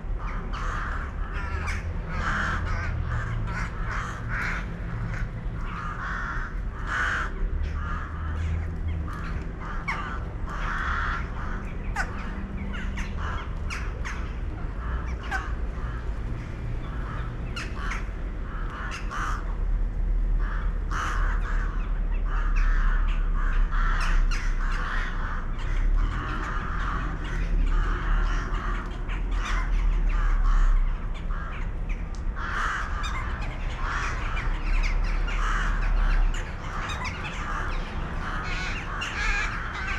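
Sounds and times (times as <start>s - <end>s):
birds making harsh grating calls: 20.4s - 39.9s.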